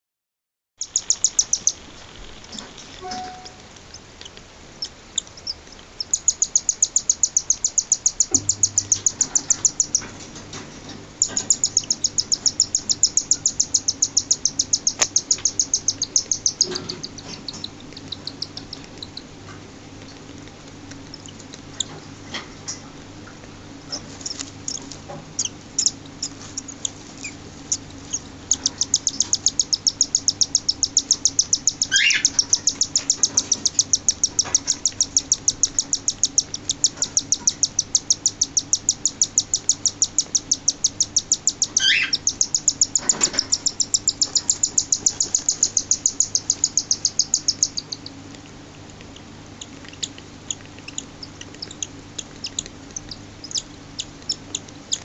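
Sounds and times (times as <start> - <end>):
bird chick begging chirps: 0.8 - 19.3, 23.9 - 48.2, 49.6 - 55.0
swooping bird calls: 27.7 - 39.4, 40.0 - 48.2.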